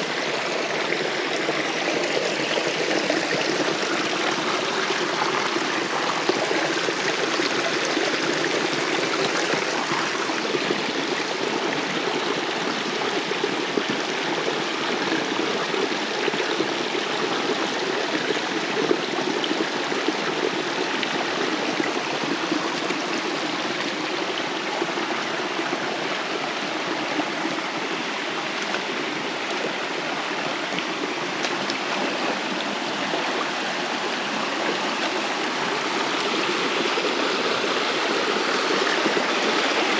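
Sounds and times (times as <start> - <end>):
river rushing: 20.6 - 39.9.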